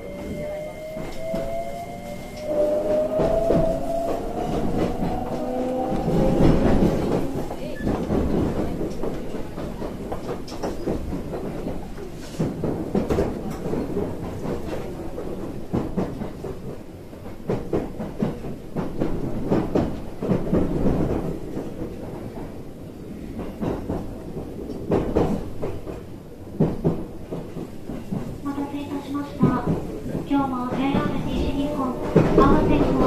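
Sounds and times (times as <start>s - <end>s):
train interior rumble: 0.0s - 33.0s
wheels clacking over rail joints: 29.3s - 33.0s.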